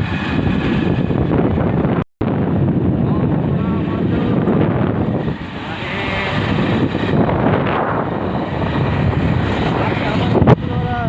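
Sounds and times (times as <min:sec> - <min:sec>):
motorcycle running: 0:00.0 - 0:11.0
wind rushing over microphone: 0:00.0 - 0:11.0.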